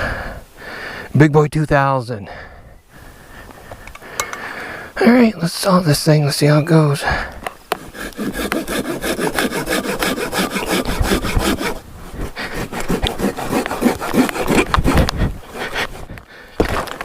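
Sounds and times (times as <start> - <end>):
hand saw cutting wood: 7.7 - 16.1.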